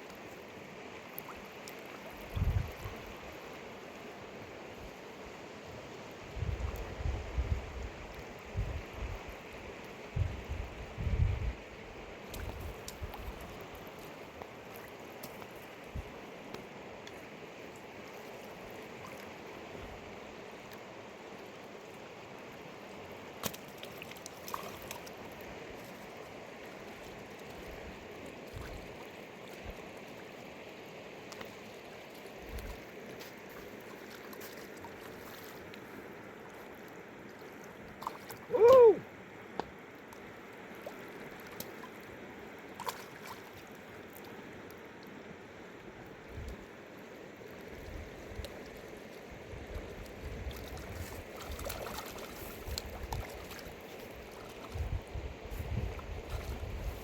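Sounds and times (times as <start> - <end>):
stream rushing: 11.6 - 57.0.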